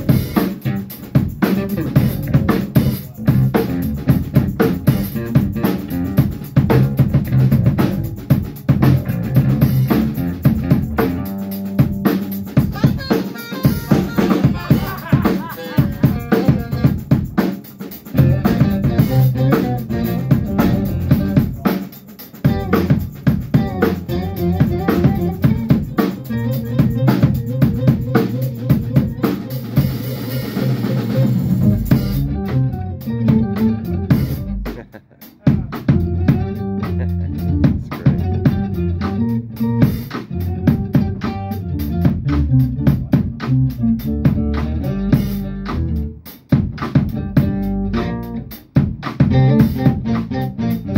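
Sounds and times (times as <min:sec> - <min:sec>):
band playing: 0:00.0 - 0:50.9
drum kit beat: 0:00.0 - 0:50.9.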